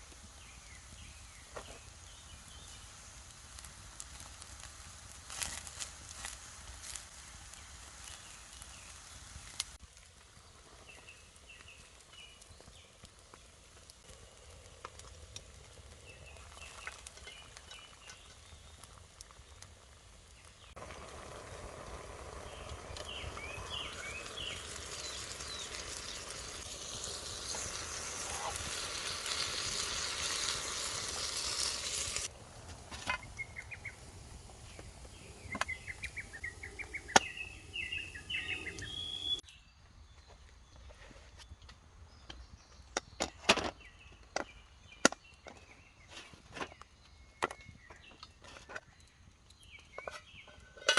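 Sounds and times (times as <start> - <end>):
food sizzling in oil: 0.0 - 12.7, 13.5 - 32.3
small birds chirping: 0.1 - 32.3, 33.1 - 50.9.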